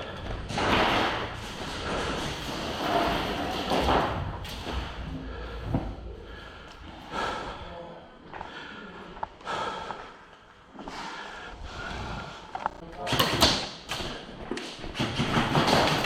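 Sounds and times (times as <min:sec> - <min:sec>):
person breathing close to microphone: 0:00.0 - 0:02.4, 0:04.6 - 0:12.8.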